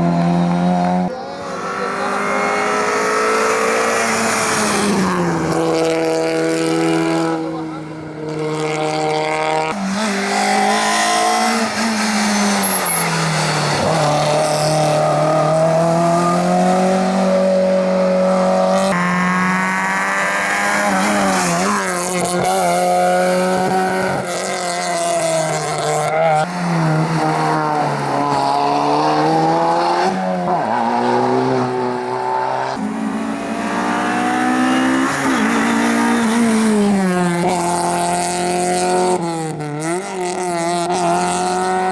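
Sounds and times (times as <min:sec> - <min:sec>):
rally car engines revving: 0:00.0 - 0:41.9
tyre squeal: 0:09.9 - 0:14.4.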